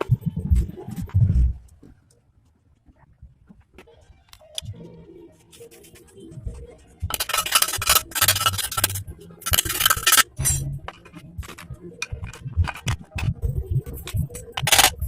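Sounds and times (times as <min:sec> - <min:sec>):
metal parts clinking and scraping: 0:07.1 - 0:13.3, 0:14.0 - 0:15.0.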